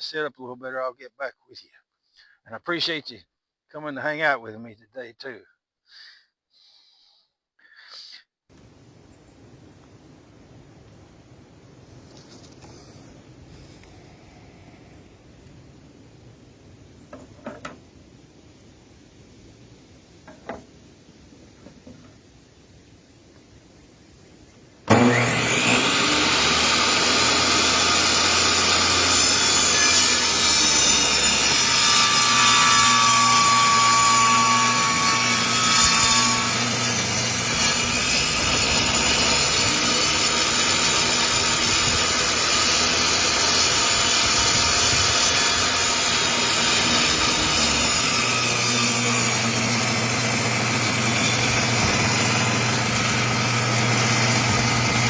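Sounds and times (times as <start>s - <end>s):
table saw cutting wood: 24.9s - 55.0s.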